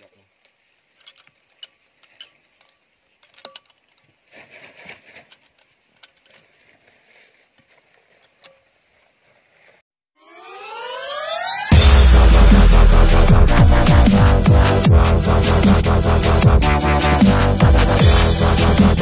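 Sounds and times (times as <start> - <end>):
hand tools clinking on steel: 0.0 - 4.1, 5.2 - 6.6
short rustle: 3.7 - 9.8.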